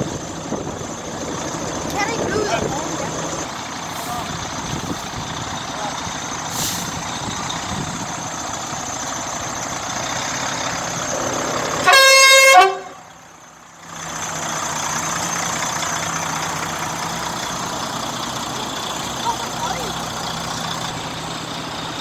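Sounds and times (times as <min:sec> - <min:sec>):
vehicle engines running: 0:00.0 - 0:22.0
truck horn blast: 0:11.2 - 0:13.2.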